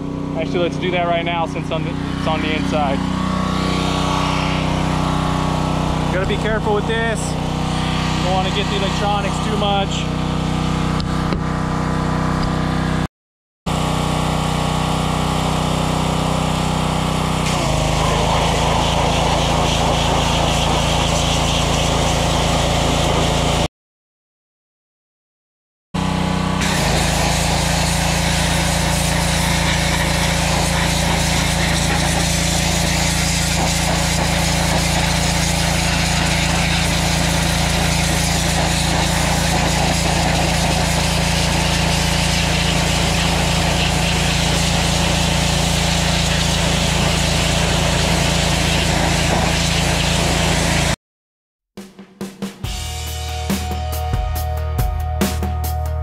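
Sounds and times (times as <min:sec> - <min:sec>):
small gas engine running: 0:00.0 - 0:13.1, 0:13.7 - 0:23.7, 0:26.0 - 0:51.0
high-pressure water spray hissing: 0:02.0 - 0:10.0, 0:14.3 - 0:23.7, 0:26.6 - 0:51.0.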